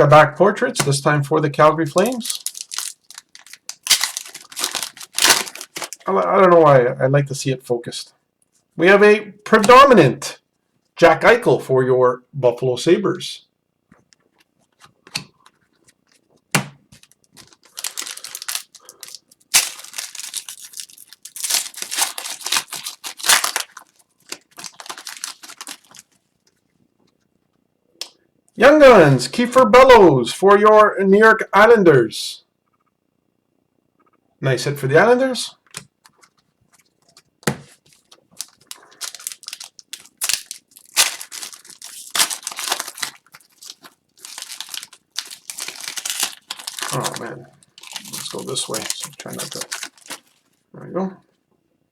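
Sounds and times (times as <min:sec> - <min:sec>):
wrappers crinkling and rustling: 0:01.9 - 0:06.1, 0:16.9 - 0:26.6, 0:36.0 - 0:50.6.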